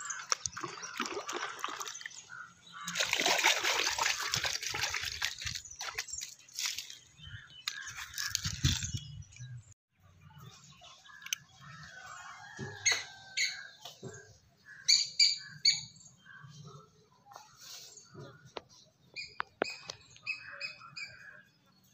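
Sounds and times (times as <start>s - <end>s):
hands scuffing wet soil: 2.9s - 9.0s
bird chirping: 5.3s - 16.8s.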